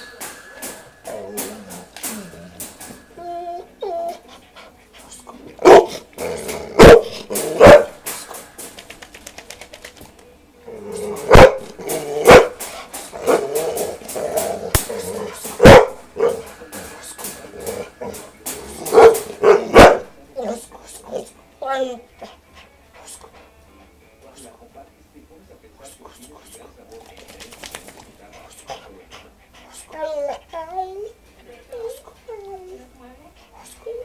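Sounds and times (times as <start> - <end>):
dog barking: 5.6 - 6.0, 6.8 - 8.0, 11.3 - 12.6, 15.6 - 16.5, 18.9 - 20.2.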